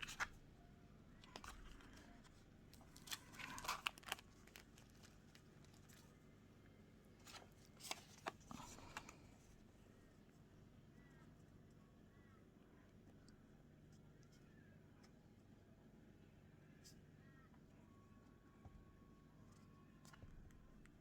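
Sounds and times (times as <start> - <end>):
paper rustling: 0.0 - 0.4, 1.2 - 6.1, 7.2 - 9.2.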